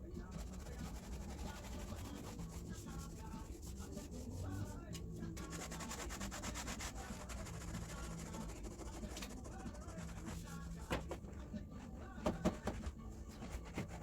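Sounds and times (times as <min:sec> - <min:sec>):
hand scrubbing car body: 0:00.3 - 0:04.8, 0:05.4 - 0:11.0.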